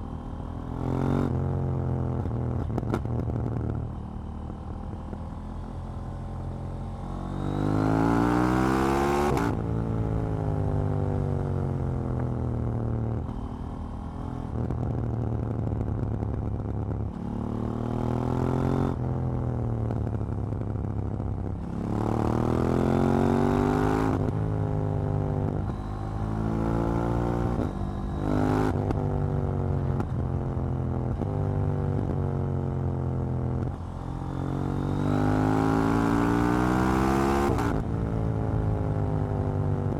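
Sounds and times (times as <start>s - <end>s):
motorcycle engine revving: 21.5s - 39.9s.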